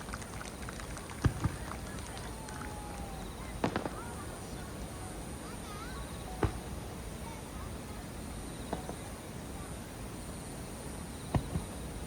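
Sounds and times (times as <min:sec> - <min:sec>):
firework bangs: 0:01.0 - 0:04.7, 0:06.3 - 0:06.8, 0:08.6 - 0:09.2, 0:11.2 - 0:12.0.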